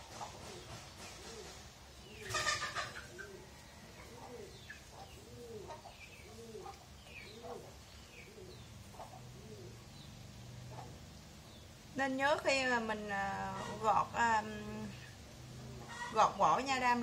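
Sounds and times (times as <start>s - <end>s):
low cooing bird calls: 0.0s - 11.8s.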